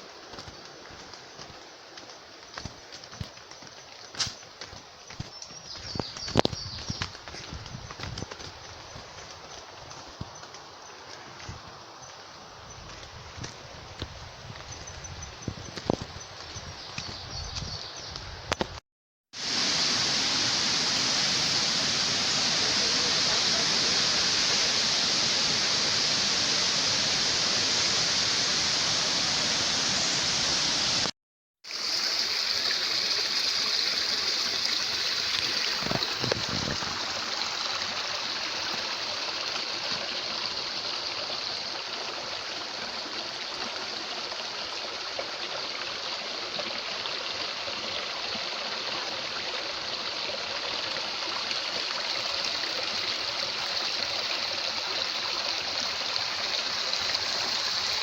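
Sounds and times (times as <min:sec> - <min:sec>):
waterfall rushing: 0:19.4 - 0:31.1, 0:51.9 - 0:58.0.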